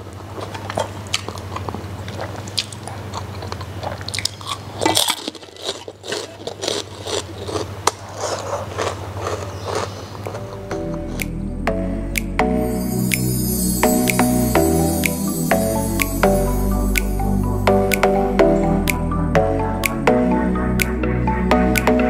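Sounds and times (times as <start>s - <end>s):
crunching crispy pork skin: 0.5s - 10.8s.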